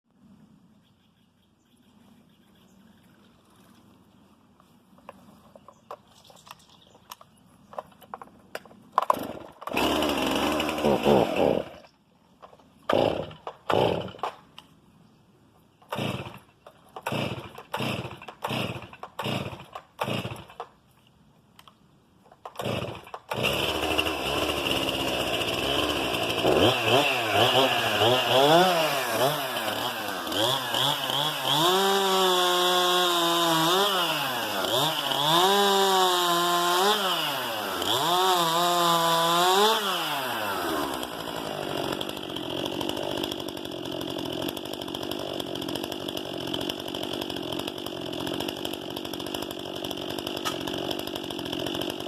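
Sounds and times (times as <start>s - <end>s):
chainsaw engine starting and running: 8.6s - 14.6s, 15.9s - 20.8s, 22.4s - 52.0s.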